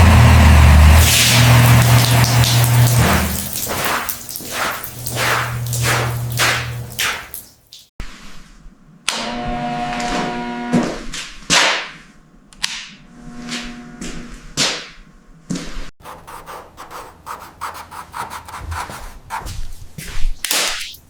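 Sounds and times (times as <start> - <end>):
scraping strokes on a surface: 3.4 - 7.3, 16.1 - 20.9
quick swishes: 18.4 - 21.0.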